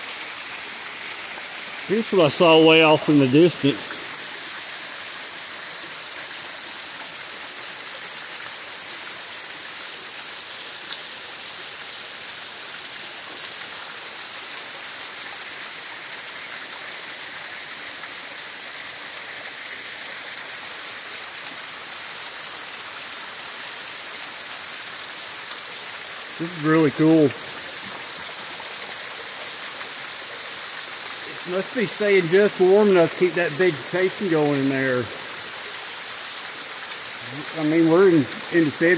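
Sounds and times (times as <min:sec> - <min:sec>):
waterfall rushing: 0:00.0 - 0:06.2, 0:23.9 - 0:38.9.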